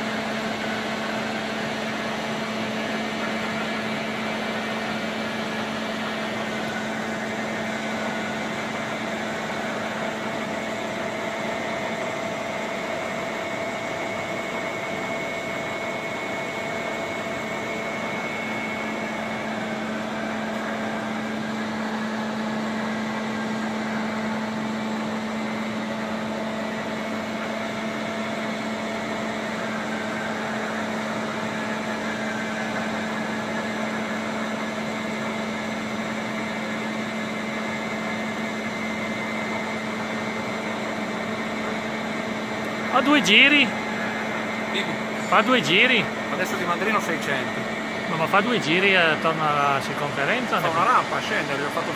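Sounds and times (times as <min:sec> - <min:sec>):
milling machine humming: 0:00.0 - 0:51.9
high whine: 0:41.4 - 0:51.9.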